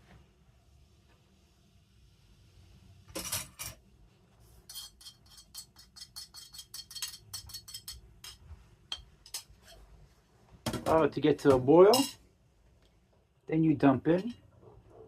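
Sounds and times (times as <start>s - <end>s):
metal spoon clinking on pot: 4.7s - 9.8s, 11.9s - 12.2s.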